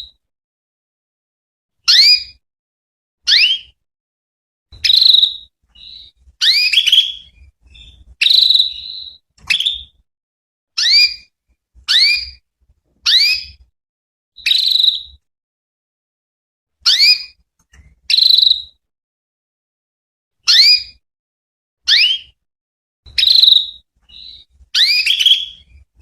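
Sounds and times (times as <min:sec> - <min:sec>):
canary chirping: 0:01.9 - 0:02.4, 0:03.3 - 0:03.8, 0:04.8 - 0:10.0, 0:10.8 - 0:12.4, 0:13.0 - 0:13.6, 0:14.4 - 0:15.2, 0:16.8 - 0:18.8, 0:20.5 - 0:21.0, 0:21.9 - 0:22.4, 0:23.1 - 0:26.0.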